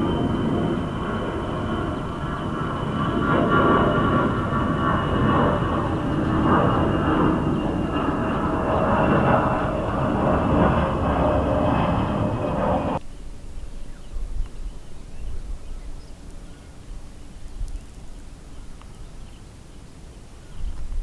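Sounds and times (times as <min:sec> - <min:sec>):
jet engines roaring: 0:00.0 - 0:13.0
outdoor ambience: 0:00.0 - 0:21.0.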